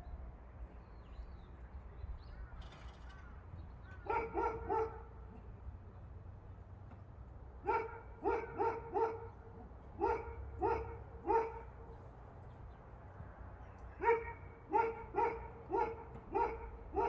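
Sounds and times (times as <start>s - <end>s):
dog barking: 4.0s - 5.2s, 7.6s - 9.4s, 10.0s - 11.8s, 14.0s - 17.0s.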